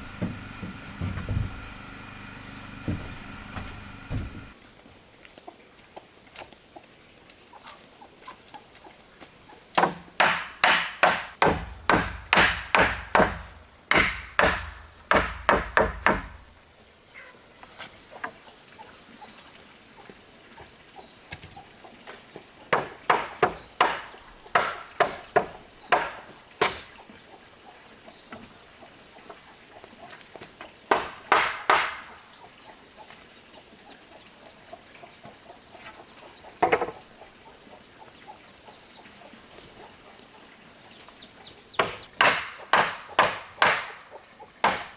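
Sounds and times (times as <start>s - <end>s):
tool striking wood: 0.0s - 4.6s, 9.8s - 16.5s, 22.8s - 26.8s, 30.9s - 32.2s, 41.8s - 44.0s, 44.6s - 44.9s.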